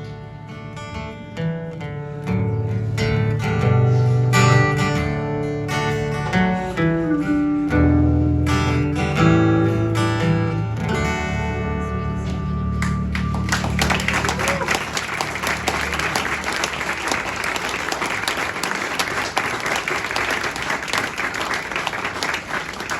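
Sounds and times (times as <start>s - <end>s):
strummed acoustic guitar: 0.0s - 13.8s
audience applauding: 12.8s - 22.9s.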